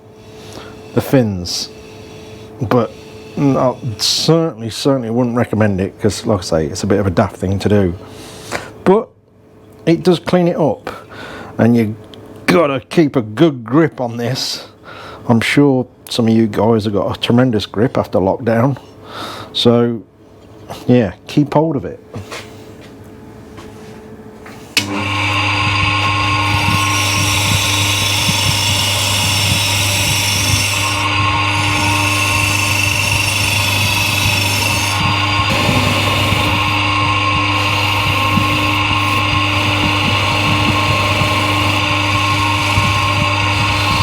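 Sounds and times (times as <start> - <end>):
power tool abrasive wheel scrubbing: 24.8 - 44.0.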